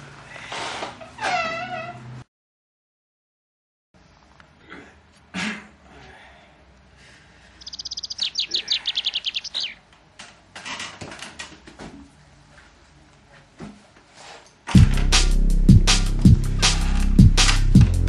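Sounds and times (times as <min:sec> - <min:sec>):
bird trilling chirps: 0:07.6 - 0:09.8.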